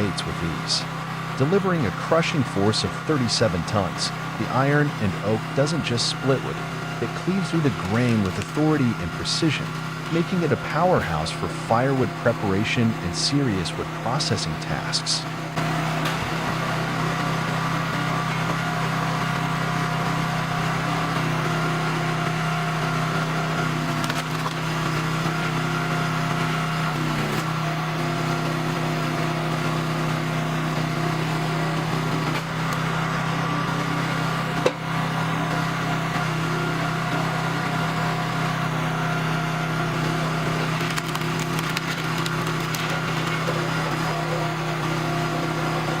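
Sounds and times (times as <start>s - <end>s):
log splitter engine running: 0.0s - 46.0s
wood cracking and splintering: 40.6s - 43.6s.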